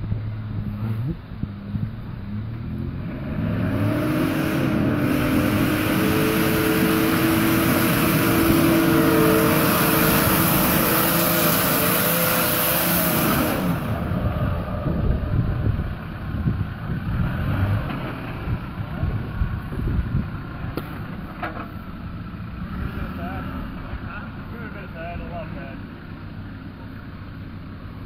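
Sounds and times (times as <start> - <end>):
engine revving hard: 2.8 - 15.7, 16.4 - 19.2.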